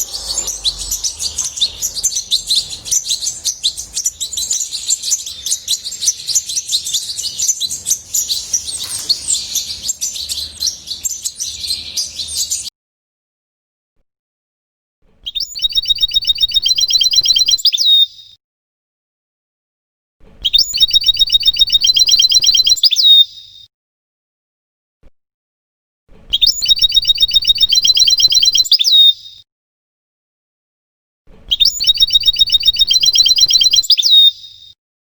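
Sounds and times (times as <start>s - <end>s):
finch twittering song: 0.0s - 12.7s, 15.3s - 17.9s, 20.5s - 23.2s, 26.4s - 29.1s, 31.5s - 34.4s
rapid bird trill: 0.0s - 12.7s, 15.5s - 17.7s, 20.6s - 22.8s, 26.5s - 28.8s, 31.6s - 34.3s.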